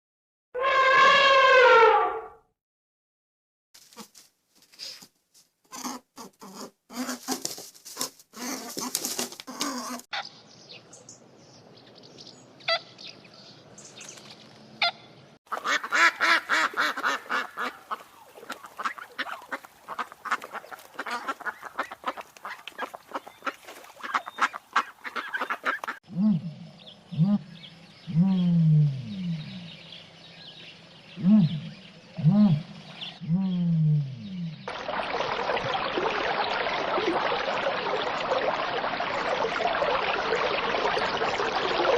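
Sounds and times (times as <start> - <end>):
ducks quacking: 14.8 - 26.0
geese honking: 14.8 - 26.0.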